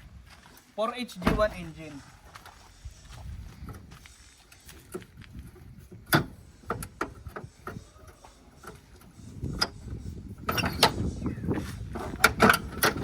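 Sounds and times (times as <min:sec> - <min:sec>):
metallic clicks and knocks: 0:12.0 - 0:13.0.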